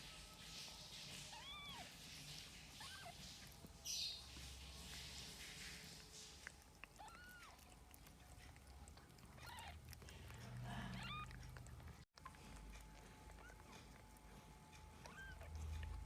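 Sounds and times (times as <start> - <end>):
kittens mewing faintly: 9.1 - 11.7.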